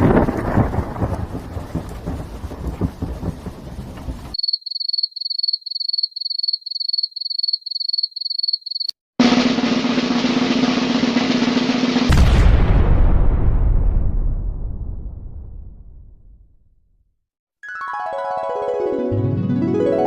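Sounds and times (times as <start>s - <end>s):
rain and thunder rumble: 0.0s - 4.4s, 9.2s - 16.1s
snare drum roll: 9.2s - 12.8s.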